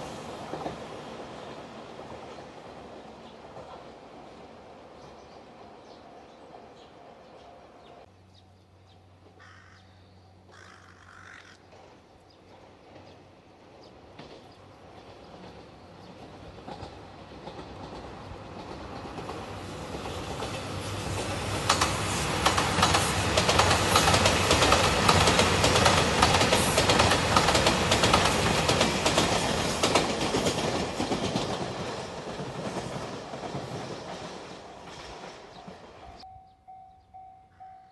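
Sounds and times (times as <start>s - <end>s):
diesel train passing: 0.0s - 9.4s, 11.6s - 37.9s
wheels clacking over rail joints: 14.0s - 36.2s.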